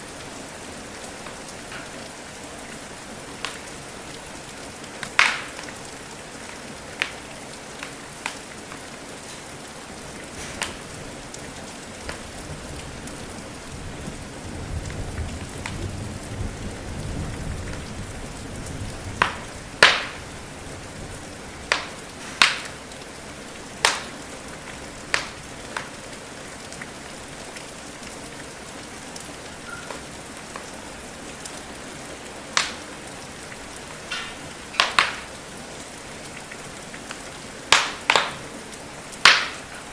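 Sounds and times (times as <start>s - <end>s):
rain patter: 0.0s - 39.9s
wood fire popping and cracking: 3.3s - 3.8s, 4.9s - 13.1s, 19.0s - 26.8s, 32.5s - 35.5s, 36.3s - 39.9s
distant thunder rumble: 12.0s - 22.9s.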